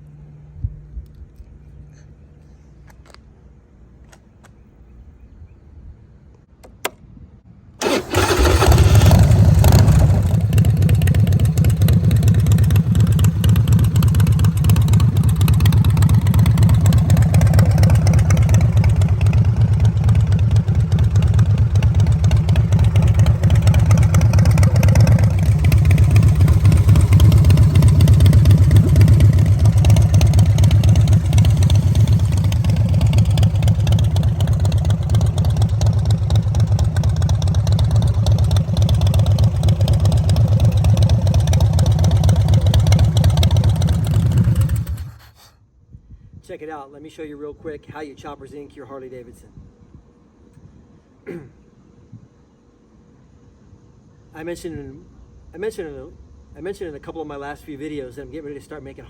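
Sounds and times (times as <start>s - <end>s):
starter click: 6.6s - 7.1s
motorcycle engine running: 7.8s - 45.3s.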